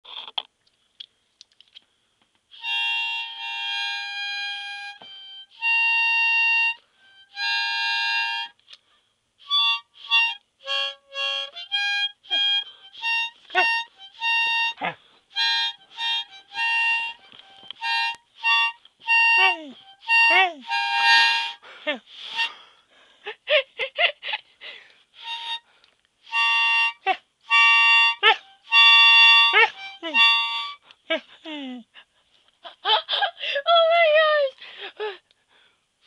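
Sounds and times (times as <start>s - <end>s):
harmonica playing: 2.5s - 8.8s, 9.4s - 22.8s, 25.1s - 31.0s.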